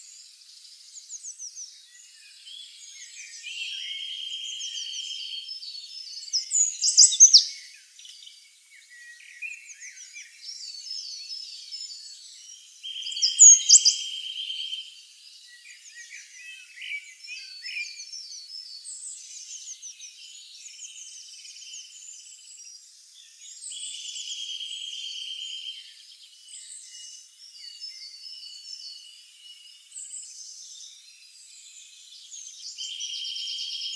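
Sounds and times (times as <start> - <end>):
songbirds chirping: 0.0 - 33.9
sweeping bird calls: 6.2 - 8.1, 12.9 - 14.9.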